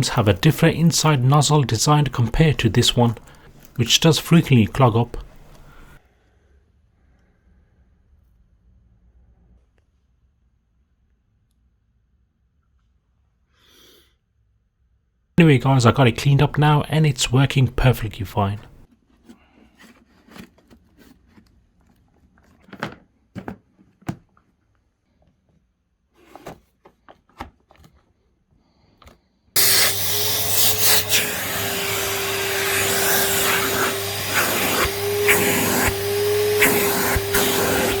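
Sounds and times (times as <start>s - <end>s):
vacuum cleaner running: 0.0s - 6.0s, 29.6s - 38.0s.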